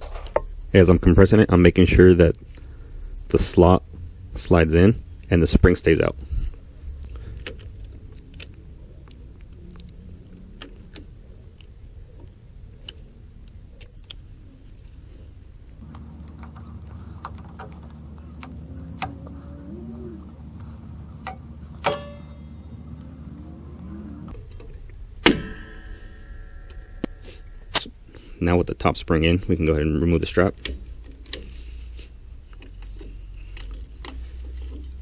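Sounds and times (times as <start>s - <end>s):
metal brake parts clicking: 20.5s - 27.9s
ringing metal clank: 21.2s - 23.2s, 25.2s - 27.7s.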